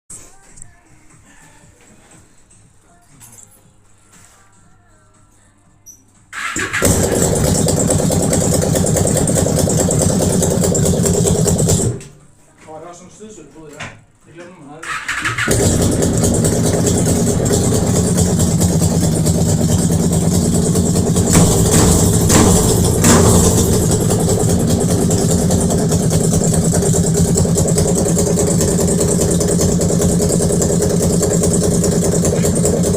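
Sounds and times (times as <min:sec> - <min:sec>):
vehicle engine idling: 0:06.6 - 0:12.0, 0:15.2 - 0:32.9.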